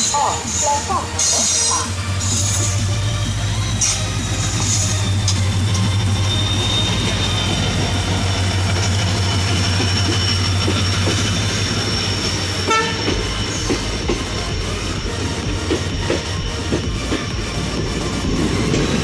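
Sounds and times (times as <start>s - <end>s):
train rumbling on tracks: 0.0s - 19.0s
train wheel squeal: 0.0s - 19.0s
train horn toot: 5.8s - 8.2s, 12.6s - 13.2s.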